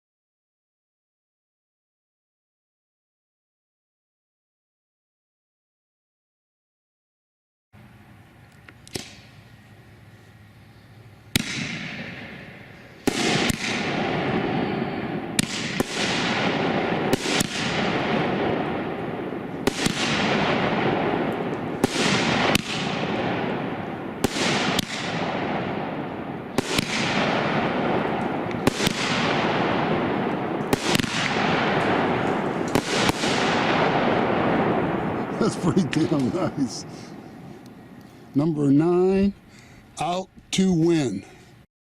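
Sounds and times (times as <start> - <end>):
firework bangs: 11.3 - 38.0
fireworks dense crackling: 11.3 - 39.7.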